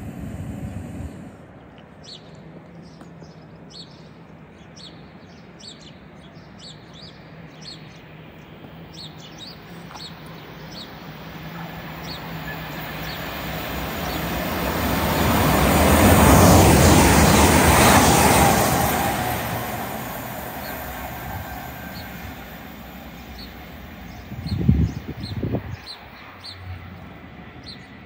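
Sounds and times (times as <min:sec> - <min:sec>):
steady low hum: 0:00.0 - 0:01.6
electric train approaching: 0:00.0 - 0:01.7, 0:08.1 - 0:28.0
small birds chirping: 0:02.0 - 0:16.3, 0:20.1 - 0:26.7.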